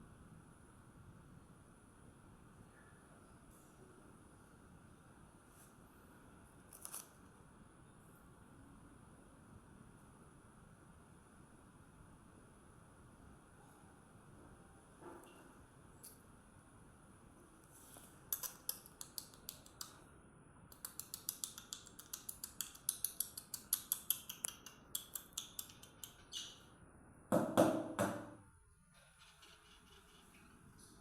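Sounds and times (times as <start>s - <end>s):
sharp light clicks and taps: 18.3s - 20.0s, 20.7s - 26.5s.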